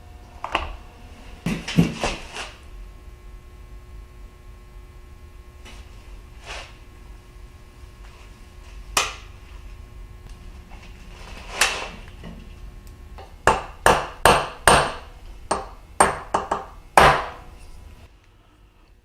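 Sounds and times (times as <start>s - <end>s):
hammer striking metal: 13.2s - 17.5s.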